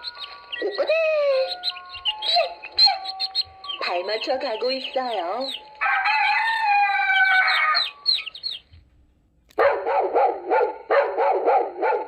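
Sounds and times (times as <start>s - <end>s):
rooster crowing: 5.8s - 8.3s.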